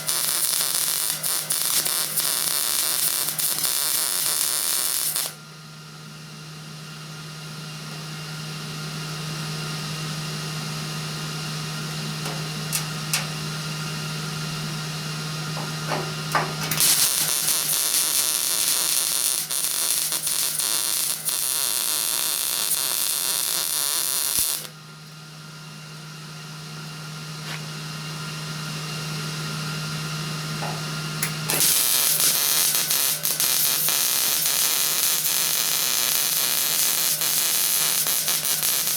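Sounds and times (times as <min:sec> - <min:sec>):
arc welder crackling hiss: 0:00.0 - 0:05.4, 0:11.9 - 0:13.9, 0:15.5 - 0:24.8, 0:30.6 - 0:38.9.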